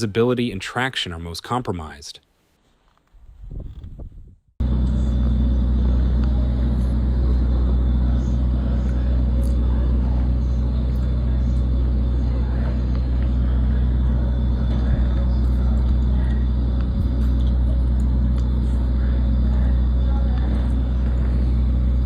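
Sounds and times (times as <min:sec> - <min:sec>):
motor vehicle engine drone: 0:04.6 - 0:22.0.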